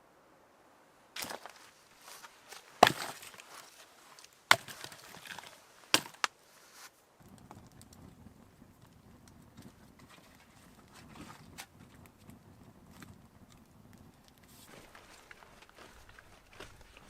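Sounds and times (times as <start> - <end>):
axe chopping firewood: 2.5 - 3.5, 4.5 - 6.3.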